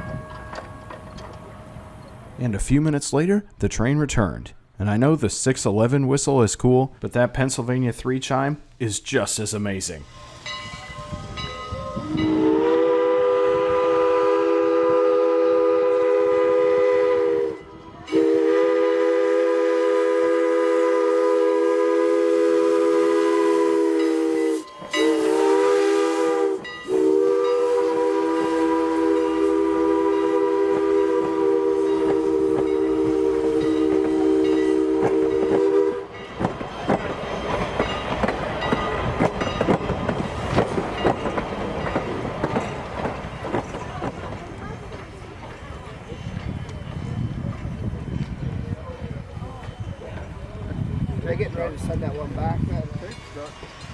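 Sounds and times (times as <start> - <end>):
train wheels clattering: 0.0 - 2.4, 29.2 - 53.9
steam whistle blasts: 10.1 - 36.2.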